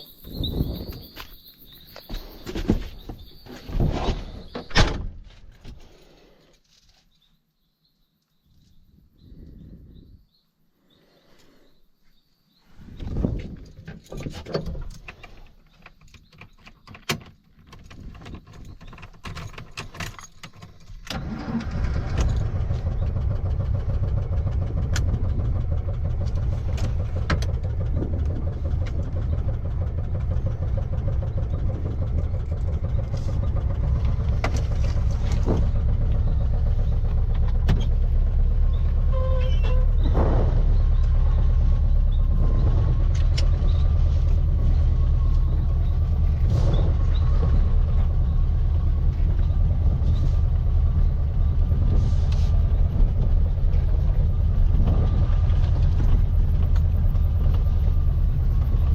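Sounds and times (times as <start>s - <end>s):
car engine starting and running: 12.8s - 58.9s
clicks and rattles: 13.0s - 21.2s.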